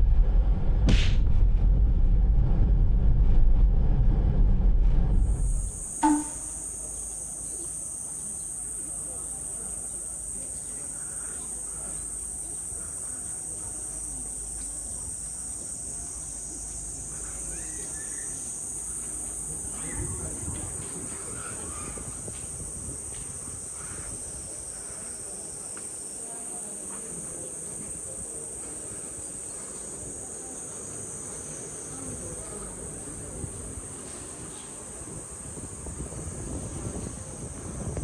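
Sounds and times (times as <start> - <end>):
low rumble: 0.0 - 5.9
insects shrilling: 5.4 - 37.7.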